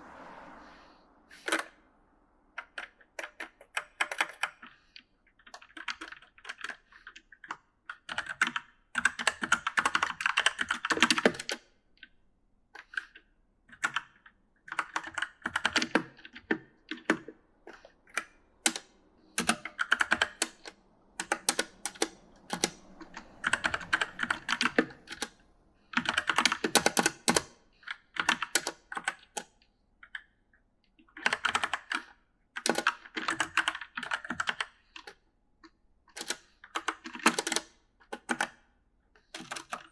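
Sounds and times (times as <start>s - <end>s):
mechanical keyboard key clicks: 26.0s - 30.2s, 36.2s - 38.6s.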